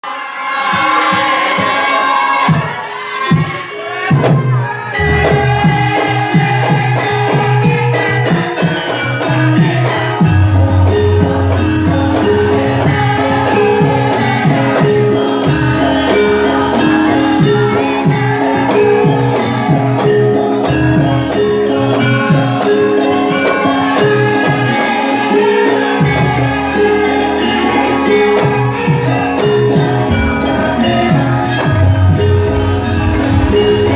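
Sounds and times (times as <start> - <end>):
band music with steady beat: 9.6 - 33.9.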